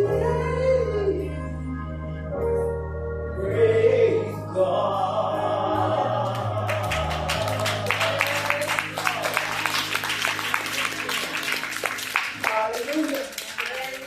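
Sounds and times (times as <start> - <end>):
person singing: 0.0 - 2.6, 3.3 - 9.4
low accompaniment chords: 0.0 - 13.5
audience cheering and clapping: 6.4 - 14.0.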